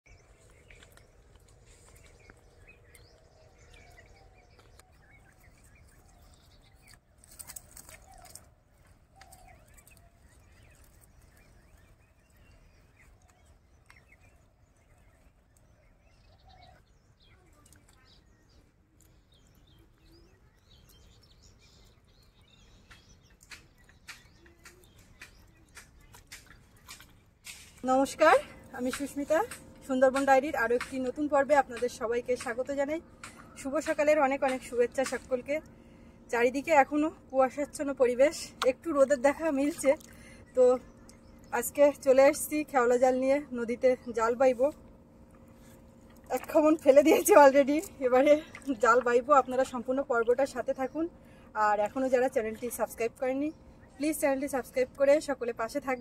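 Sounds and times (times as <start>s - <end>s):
bird chirps and calls: 9.1s - 27.3s.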